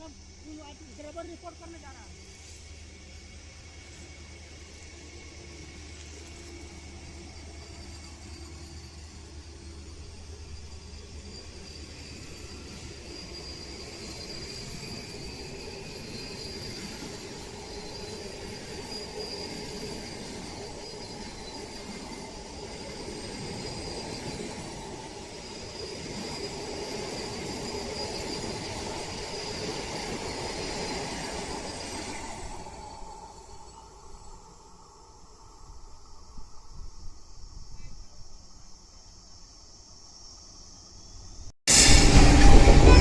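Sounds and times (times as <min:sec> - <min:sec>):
train coaches rumbling: 0:00.0 - 0:34.7, 0:41.7 - 0:43.0
high-pitched whine: 0:40.3 - 0:43.0.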